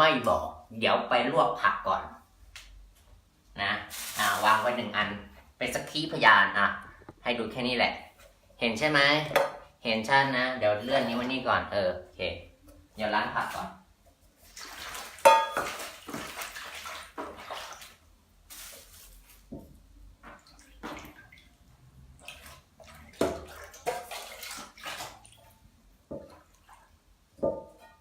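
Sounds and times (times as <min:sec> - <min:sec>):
vegetables splashing in water: 0:03.9 - 0:04.8, 0:14.4 - 0:25.6.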